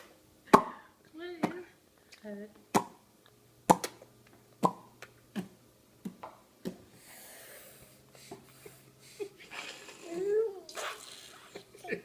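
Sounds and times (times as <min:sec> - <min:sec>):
soft breathy hiss: 0:06.9 - 0:11.8
child's mouth smacking: 0:10.7 - 0:11.6.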